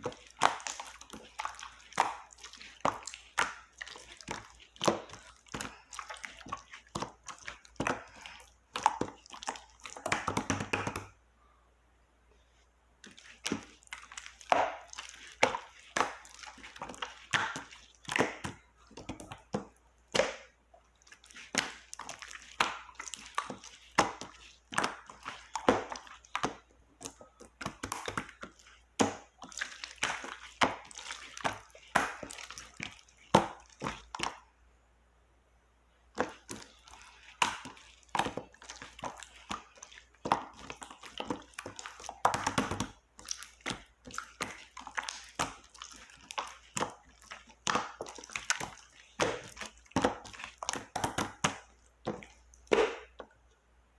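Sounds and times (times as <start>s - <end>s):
slime squished by hand: 13.0s - 34.5s.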